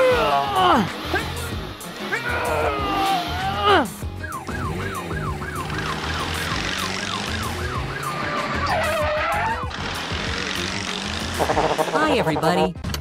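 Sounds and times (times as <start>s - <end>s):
siren yelping: 2.3s - 9.7s.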